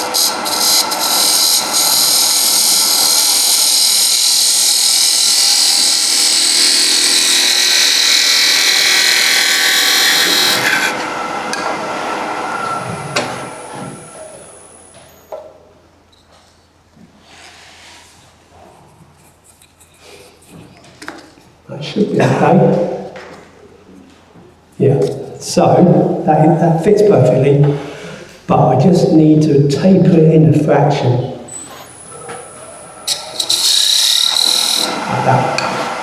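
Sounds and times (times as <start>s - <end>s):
lathe running: 0.0s - 14.9s, 31.7s - 36.0s
tool cutting wood on a lathe: 0.0s - 14.9s, 31.8s - 36.0s.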